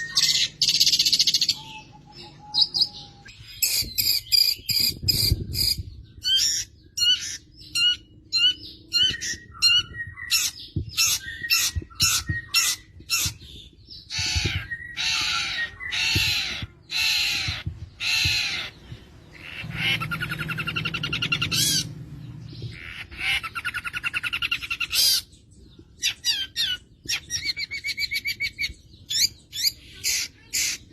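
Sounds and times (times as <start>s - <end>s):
bird chirps: 0.0s - 30.9s
bird harsh squawks: 14.1s - 21.9s, 22.7s - 25.3s.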